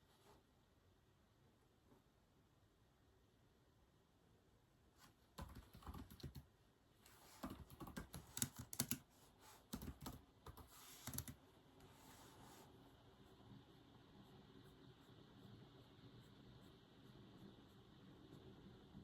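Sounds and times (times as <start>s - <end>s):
keyboard typing clicks: 5.4s - 6.4s, 7.4s - 9.0s, 9.7s - 11.4s.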